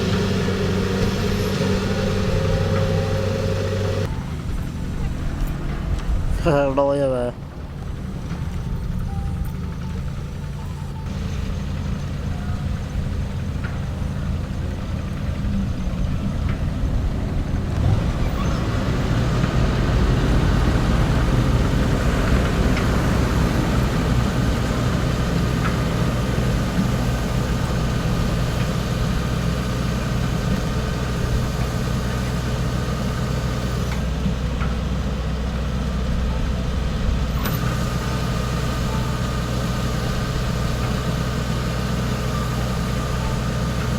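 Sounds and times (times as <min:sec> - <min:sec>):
combine harvester diesel engine: 0:00.0 - 0:43.9.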